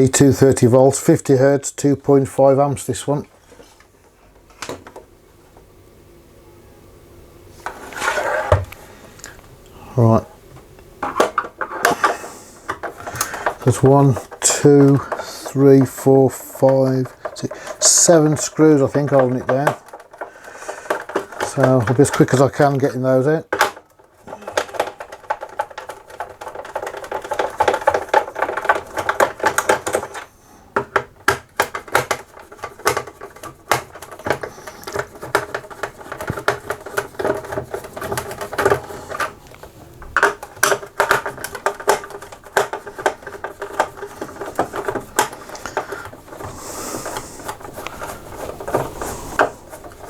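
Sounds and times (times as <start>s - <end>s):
screwdriver clicking and rattling: 12.7s - 22.4s, 24.5s - 39.3s, 40.2s - 50.0s.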